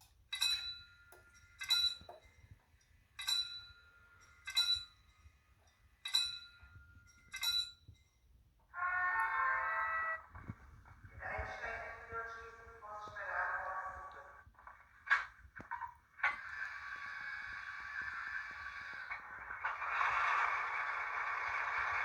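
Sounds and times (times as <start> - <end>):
level crossing warning bell: 0.3 - 9.2
model locomotive horn: 8.8 - 10.2.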